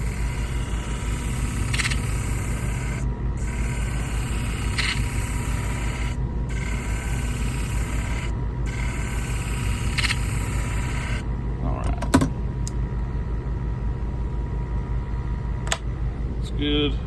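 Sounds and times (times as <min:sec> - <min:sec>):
blade grinding hiss: 0:00.0 - 0:11.2
sharpening machine motor humming: 0:00.0 - 0:11.3.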